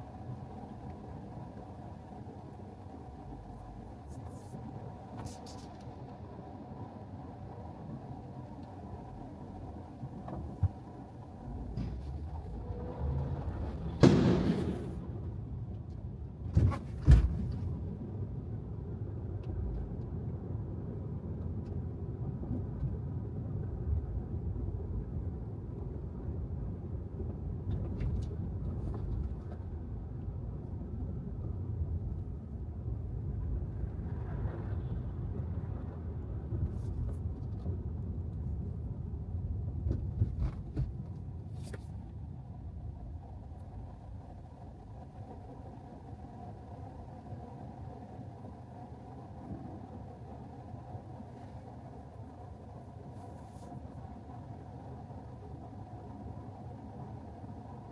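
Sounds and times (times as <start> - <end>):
tyre and road noise: 10.2 - 17.9.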